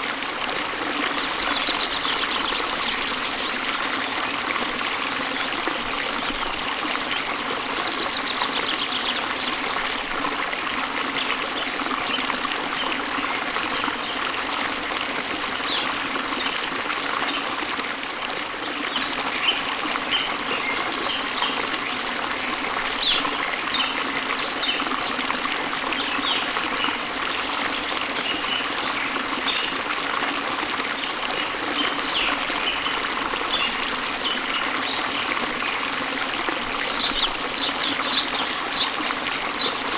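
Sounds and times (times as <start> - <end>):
falling water rushing: 0.0 - 39.9
small birds chirping: 1.3 - 4.4, 36.9 - 39.9.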